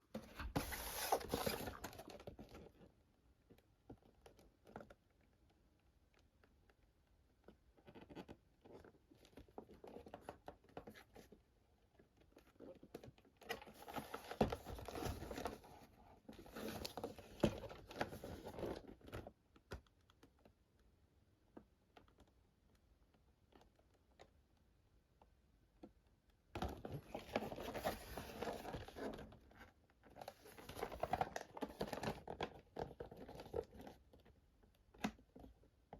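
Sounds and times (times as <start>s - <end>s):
packaging rustling and scratching: 0.2s - 2.8s, 12.3s - 19.3s, 26.6s - 34.3s.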